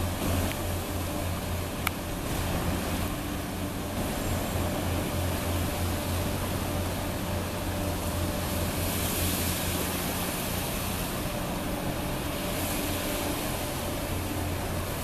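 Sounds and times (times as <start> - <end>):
mid-pitched hum: 0.0 - 15.0
ship engine drone: 0.0 - 15.0.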